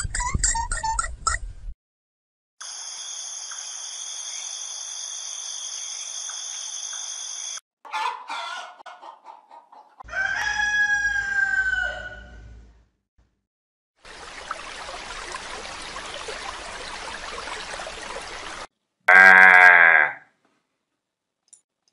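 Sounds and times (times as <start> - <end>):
hens clucking: 7.9 - 10.1
rooster crowing: 10.0 - 12.4.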